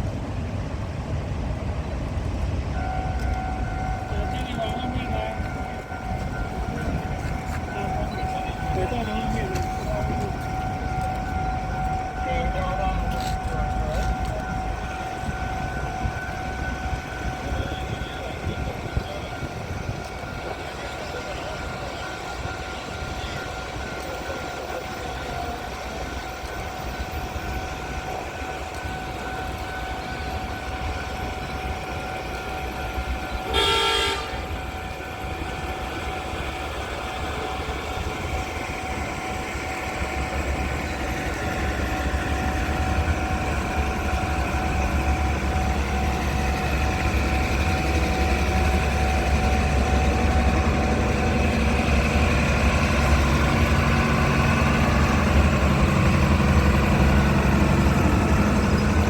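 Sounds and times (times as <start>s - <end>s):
rail vehicle engine rumble: 0.0s - 59.0s
short horn toot: 33.5s - 34.4s.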